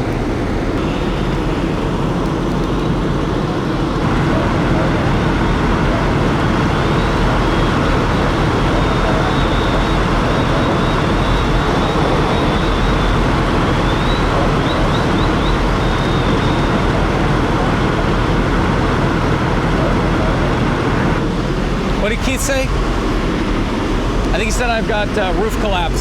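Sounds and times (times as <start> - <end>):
faint high whine: 0.0 - 18.0, 21.0 - 26.0
fire truck engine rumble: 0.0 - 26.0.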